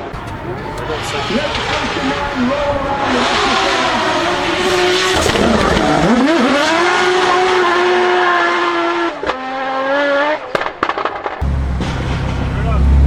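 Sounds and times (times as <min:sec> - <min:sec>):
car engine note: 0:00.0 - 0:06.2, 0:11.4 - 0:13.0
exhaust cracks: 0:00.0 - 0:07.3, 0:11.4 - 0:13.0.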